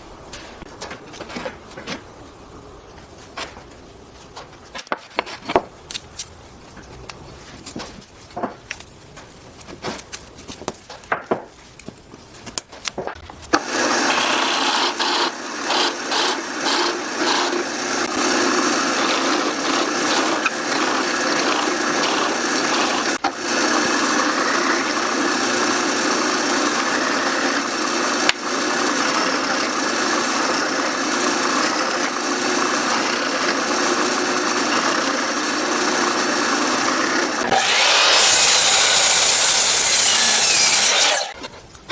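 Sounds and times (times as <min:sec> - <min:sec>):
wood knocking and clicking: 0:07.7 - 0:13.6
power tool cutting wood: 0:13.5 - 0:41.4.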